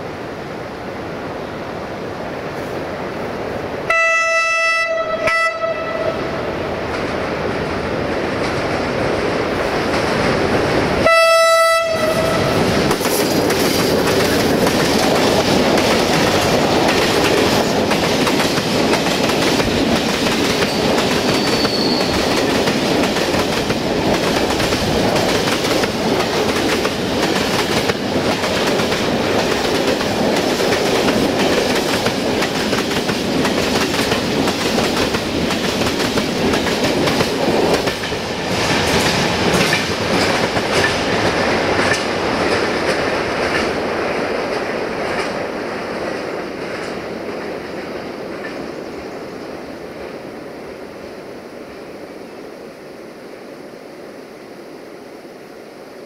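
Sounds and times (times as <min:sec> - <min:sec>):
train wheels clattering over rail joints: 0:12.6 - 0:48.7.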